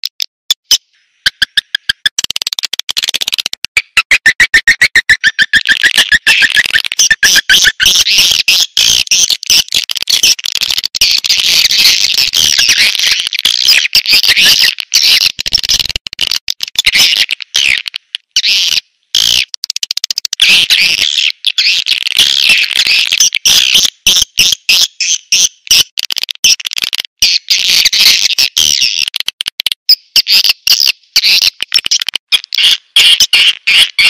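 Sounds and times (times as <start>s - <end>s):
rapid clicking trills: 0.0s - 18.4s, 19.2s - 20.4s, 25.3s - 27.2s, 28.4s - 34.0s
swiftlets twittering chorus: 3.8s - 9.4s.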